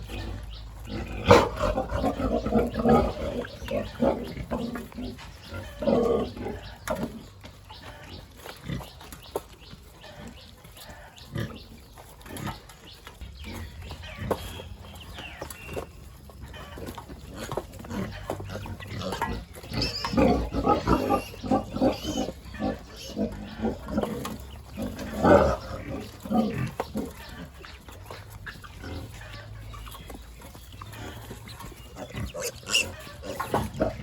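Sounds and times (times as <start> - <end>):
pigs grunting: 0.0 - 34.0.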